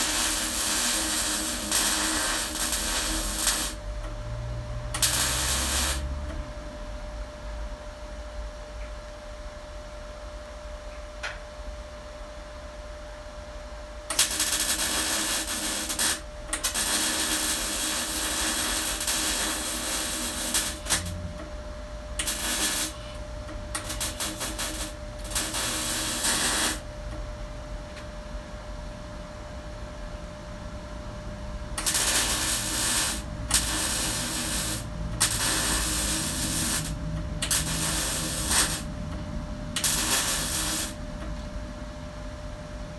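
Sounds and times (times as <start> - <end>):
welder arc crackling: 0.0 - 6.3, 14.1 - 21.5, 22.1 - 26.9, 31.8 - 41.4
steady low hum: 0.0 - 42.9.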